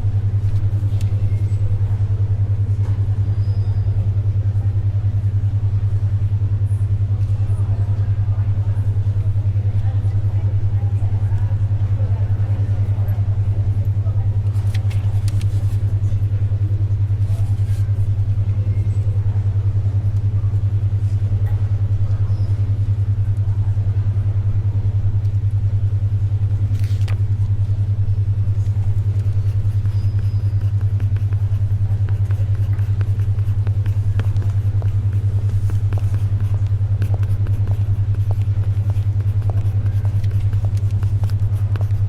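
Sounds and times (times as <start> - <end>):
pulsing low hum: 0.0 - 42.0
paper rustling: 14.6 - 15.8, 32.0 - 42.0
pencil scratching: 29.0 - 42.0.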